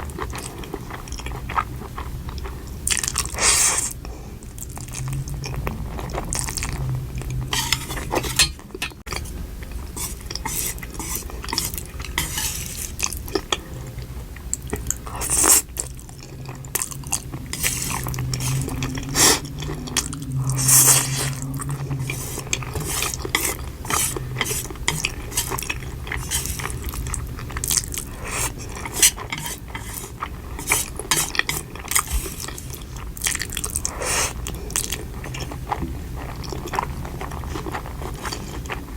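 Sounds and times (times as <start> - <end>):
crunchy chewing: 0.0 - 38.9
cutlery clinking on a dish: 7.6 - 9.0.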